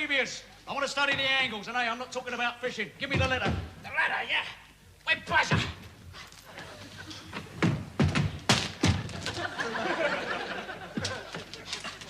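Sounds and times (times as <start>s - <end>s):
heavy thuds and bangs: 7.6s - 9.4s.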